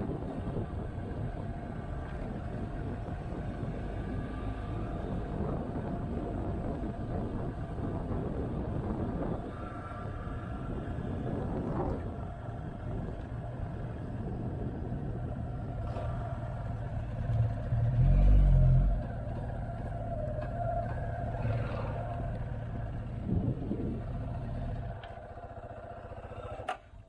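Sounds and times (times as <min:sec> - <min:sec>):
road and wind noise: 0:00.0 - 0:27.0
motorcycle engine running: 0:18.9 - 0:27.0.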